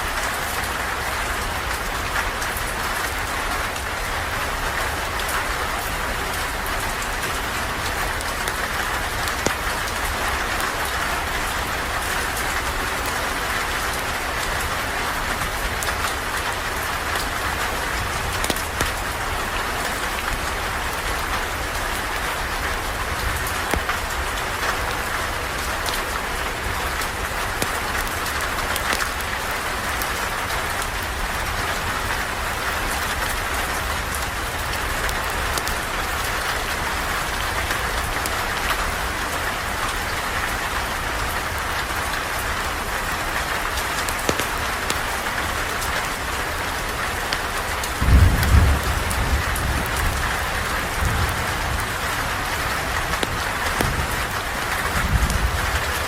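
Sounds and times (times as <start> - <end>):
steady rain falling: 0.0 - 56.0
low roll of thunder: 48.0 - 51.8.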